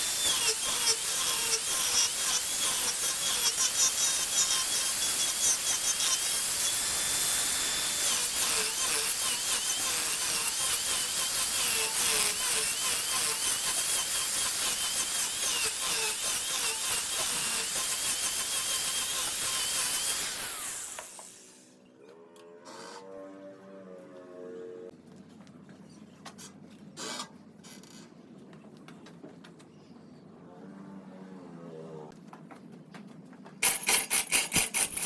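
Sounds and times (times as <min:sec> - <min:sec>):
wood lathe cutting: 0:00.0 - 0:21.2.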